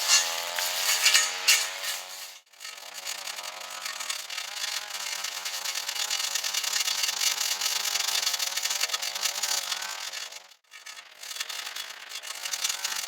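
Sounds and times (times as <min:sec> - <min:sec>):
rasping cutting noise: 0:00.0 - 0:02.4
two-stroke engine running under load: 0:00.0 - 0:13.0.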